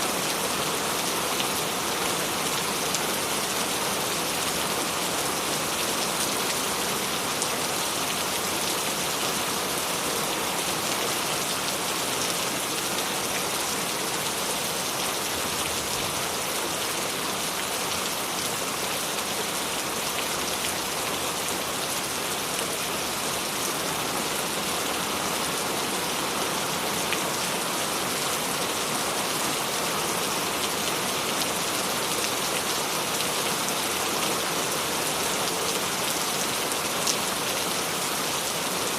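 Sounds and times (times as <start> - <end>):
rain on hard surfaces: 0.0 - 38.9.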